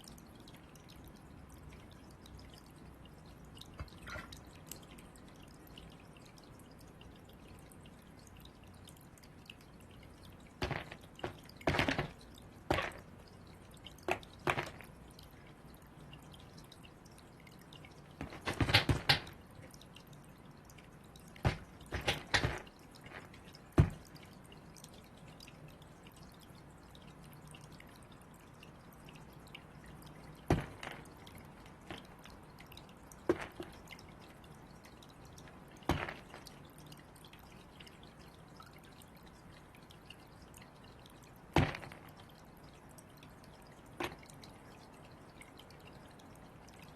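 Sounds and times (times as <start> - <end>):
crows pecking and knocking: 10.6 - 13.1, 18.2 - 19.4, 21.4 - 24.1.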